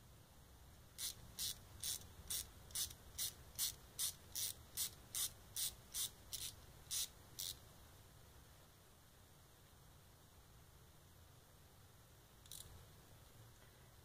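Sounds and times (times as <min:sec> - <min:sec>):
rubbing strokes on metal part: 0:01.0 - 0:07.6.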